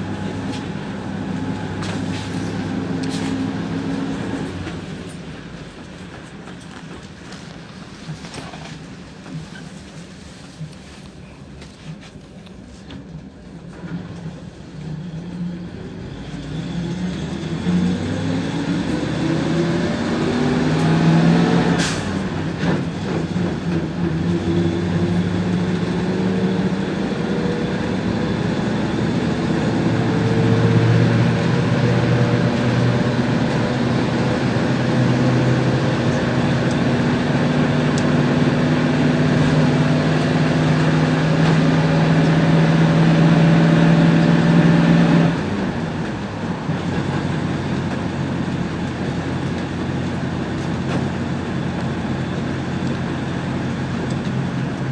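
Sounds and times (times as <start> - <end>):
bus engine accelerating: 0.0 - 54.9.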